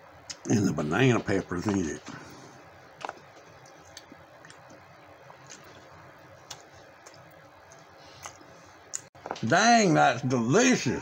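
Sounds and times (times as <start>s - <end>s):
faint chewing: 1.1s - 9.4s.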